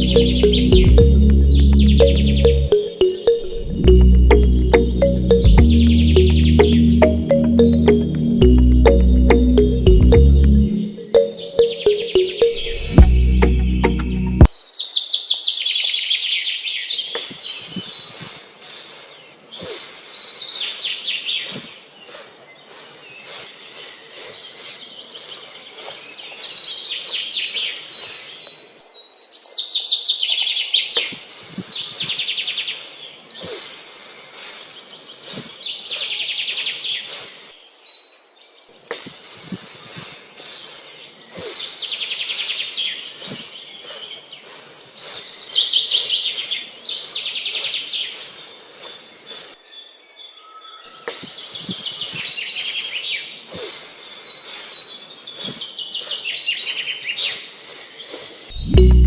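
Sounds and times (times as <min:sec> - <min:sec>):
birds chirping in trills: 0:00.0 - 0:14.9.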